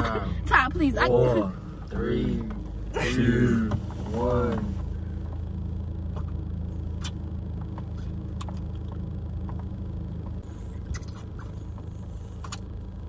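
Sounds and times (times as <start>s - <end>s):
low hum inside car: 0.0s - 13.0s.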